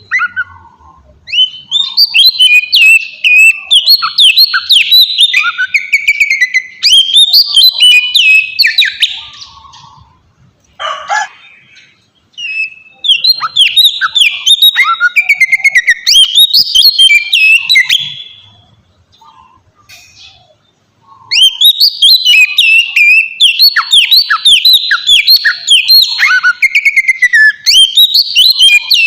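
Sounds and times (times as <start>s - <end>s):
bird whistles and trills: 0.0s - 10.2s, 10.8s - 29.0s
harsh bird call: 10.8s - 29.0s.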